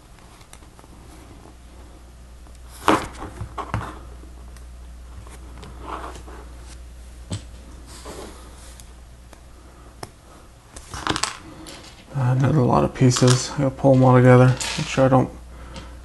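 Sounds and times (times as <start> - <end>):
steady low hum: 0.0 - 16.0
plastic pieces clicking and rattling: 13.2 - 15.0.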